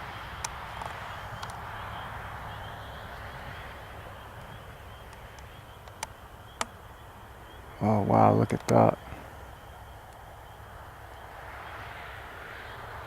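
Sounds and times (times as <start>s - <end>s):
distant aircraft engine drone: 0.0s - 13.0s
sharp clicks: 5.1s - 6.8s, 8.5s - 8.8s.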